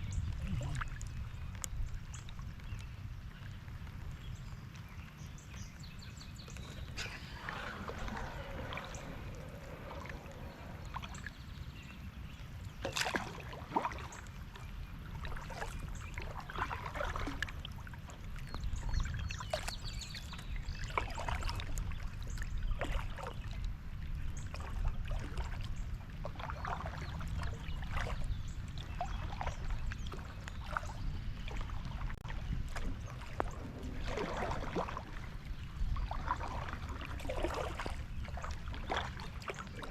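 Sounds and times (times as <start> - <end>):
water splashes and drips: 0.0 - 11.8, 12.6 - 39.9
paddle dipping into water: 0.2 - 39.9
low steady rumble: 5.3 - 12.8.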